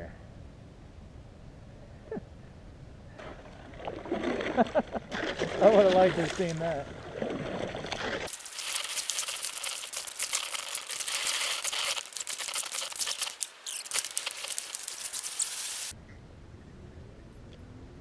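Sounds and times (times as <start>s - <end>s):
lake ice crackling: 3.2s - 16.0s.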